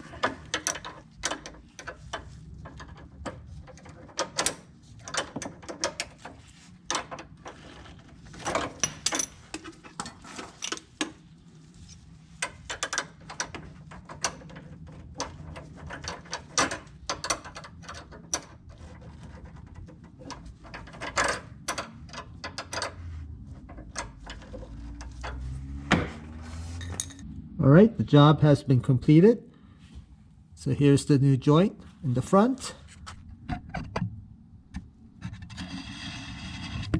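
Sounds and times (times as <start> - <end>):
hand tools clicking and clanking: 0.0 - 11.2, 12.4 - 26.2.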